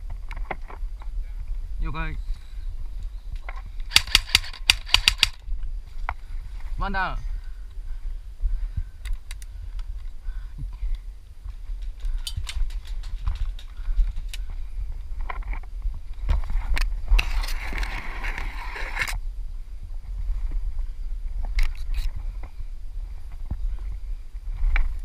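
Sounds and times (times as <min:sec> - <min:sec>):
airsoft gun cracks: 0:03.9 - 0:05.4.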